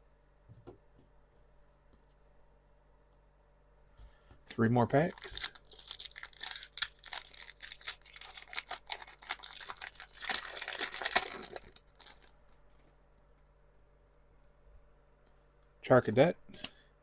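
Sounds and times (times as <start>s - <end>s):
foil wrapper tearing and crinkling: 5.0s - 12.8s.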